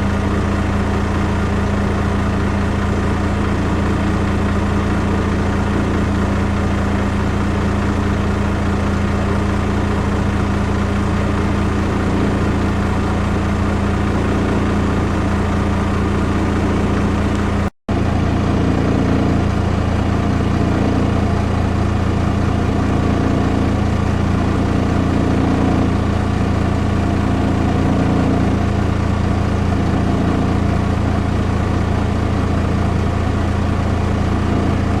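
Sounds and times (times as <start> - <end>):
boat engine idling: 0.0 - 35.0.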